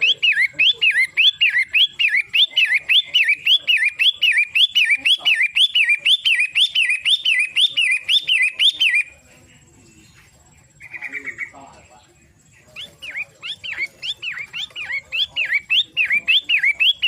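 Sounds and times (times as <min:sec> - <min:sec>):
bird whistling calls: 0:00.0 - 0:09.2, 0:12.6 - 0:17.0.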